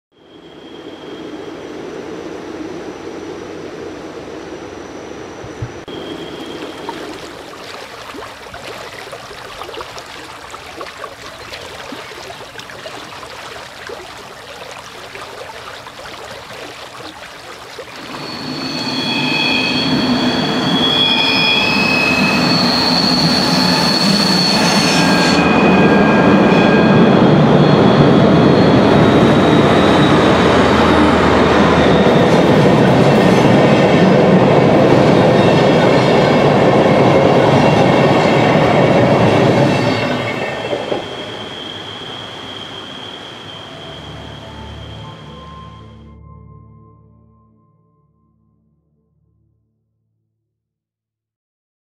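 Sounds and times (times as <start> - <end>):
train wheel squeal: 0.1 - 7.5, 11.2 - 46.4
train rumbling and clattering past: 18.0 - 45.8.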